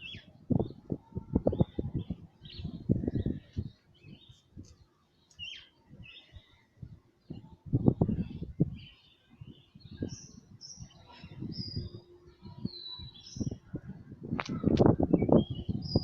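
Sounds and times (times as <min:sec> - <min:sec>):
small bird chirping: 0:08.7 - 0:13.6.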